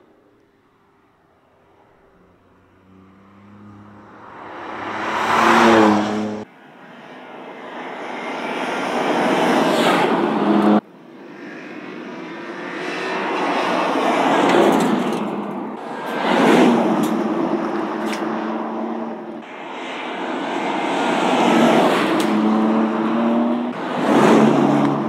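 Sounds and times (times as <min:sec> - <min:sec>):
car engine pulling hard: 0:02.2 - 0:06.5.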